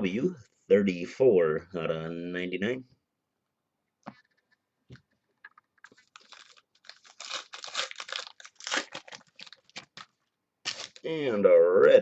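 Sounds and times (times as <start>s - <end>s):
card packaging crackling: 5.8s - 11.1s.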